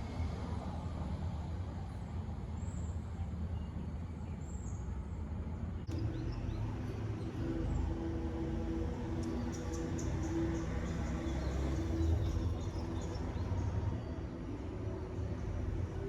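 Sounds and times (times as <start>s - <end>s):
low engine rumble: 5.6s - 16.0s.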